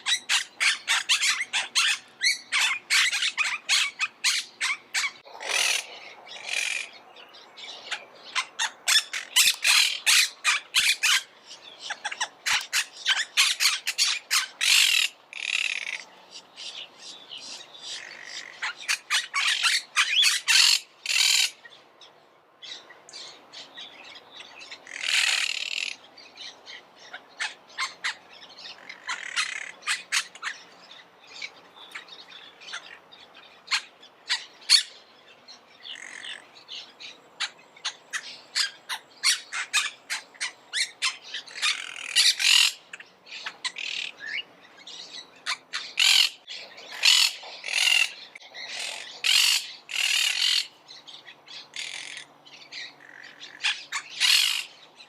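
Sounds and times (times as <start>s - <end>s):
parakeets squawking: 0.0s - 6.9s, 7.8s - 16.1s, 17.9s - 21.6s, 24.8s - 26.0s, 27.0s - 30.6s, 33.7s - 35.0s, 37.4s - 44.4s, 45.0s - 50.8s, 51.5s - 54.8s.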